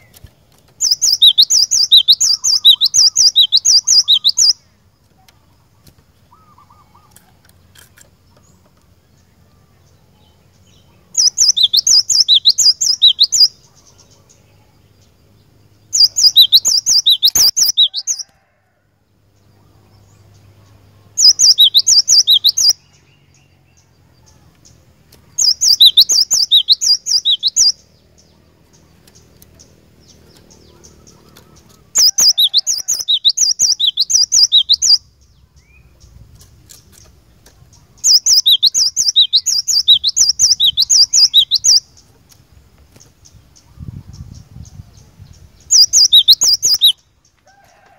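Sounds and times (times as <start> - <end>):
bird singing high whistled notes: 0.8 - 4.6, 10.7 - 13.6, 16.0 - 18.3, 21.2 - 23.1, 25.4 - 27.9, 31.9 - 35.9, 38.1 - 41.9, 45.6 - 47.1.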